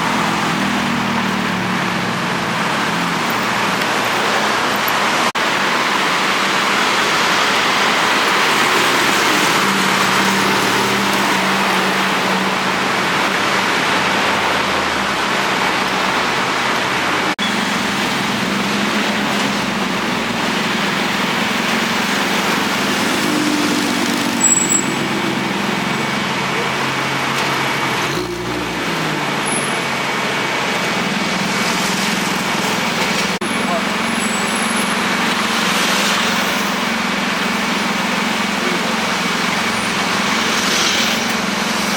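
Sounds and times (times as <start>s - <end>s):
city road traffic: 0.0s - 41.9s
brief high squeal: 24.4s - 25.0s.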